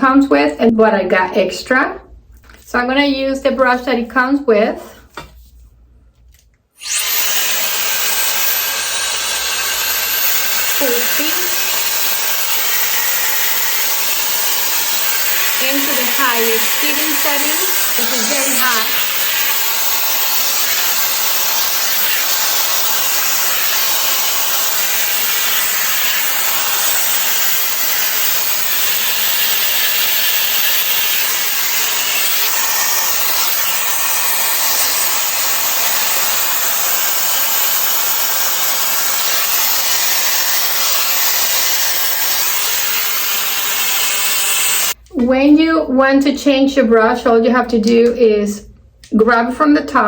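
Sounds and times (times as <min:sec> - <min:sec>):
air styler blowing air: 0:06.8 - 0:45.0.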